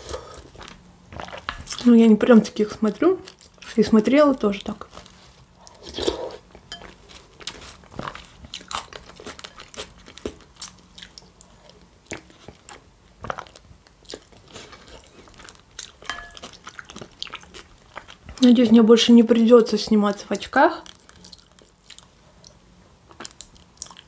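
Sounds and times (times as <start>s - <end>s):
crunchy chewing: 0.0s - 1.9s, 4.8s - 18.5s, 20.8s - 24.0s.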